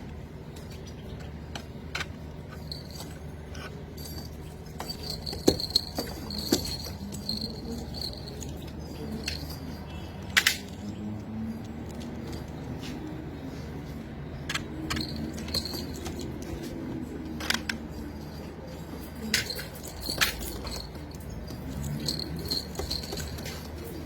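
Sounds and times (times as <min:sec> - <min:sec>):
sharp clicks and rattles: 0:14.3 - 0:24.0.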